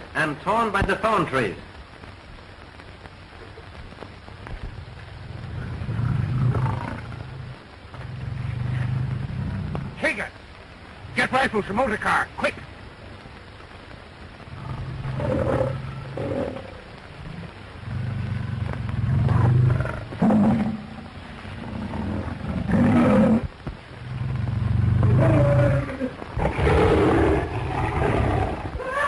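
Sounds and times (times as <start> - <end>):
lions growling and roaring: 5.2 - 10.0, 14.5 - 29.0.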